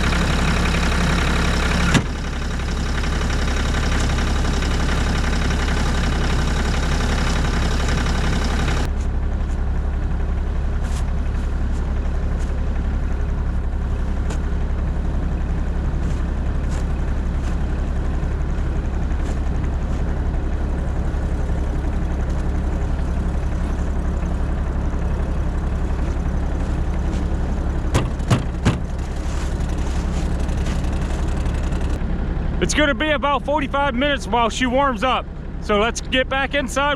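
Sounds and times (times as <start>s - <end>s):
excavator diesel engine idling: 0.0s - 36.9s
sharp knocks: 27.9s - 29.0s.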